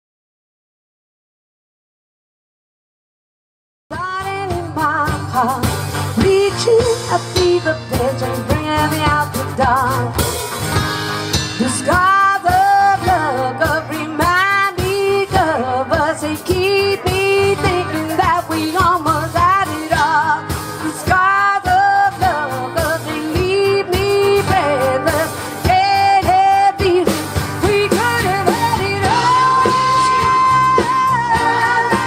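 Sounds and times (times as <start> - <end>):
live band playing: 3.9 - 32.0
drum strokes: 4.3 - 15.5
person singing: 11.6 - 32.0.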